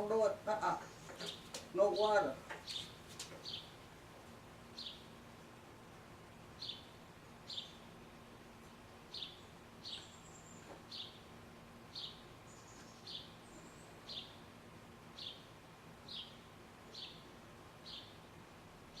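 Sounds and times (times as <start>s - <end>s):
bird chirping: 0.0s - 3.8s, 4.8s - 5.1s, 6.6s - 7.8s, 9.1s - 11.2s, 11.9s - 14.4s, 15.2s - 18.2s.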